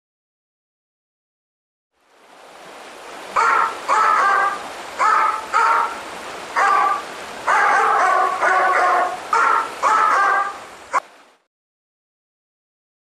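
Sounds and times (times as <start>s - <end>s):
dog barking: 3.4s - 5.9s, 6.6s - 10.6s.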